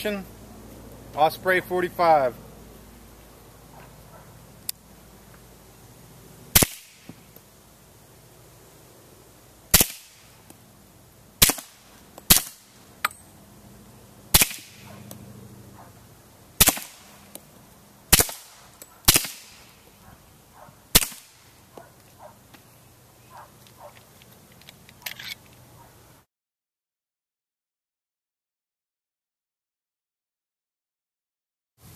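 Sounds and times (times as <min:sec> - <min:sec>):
suppressed pistol shots: 0:06.6 - 0:07.0, 0:09.7 - 0:10.2, 0:11.4 - 0:12.6, 0:14.3 - 0:14.9, 0:16.6 - 0:17.1, 0:18.1 - 0:19.6, 0:20.9 - 0:21.3.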